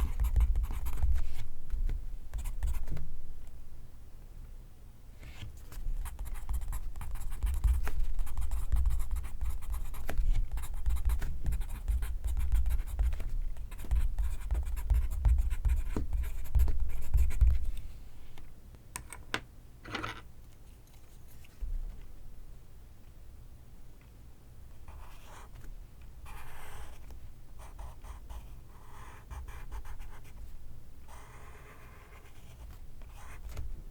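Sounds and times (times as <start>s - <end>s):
pencil writing on paper: 0.0s - 1.4s, 6.0s - 17.6s, 26.3s - 27.0s, 27.6s - 30.3s.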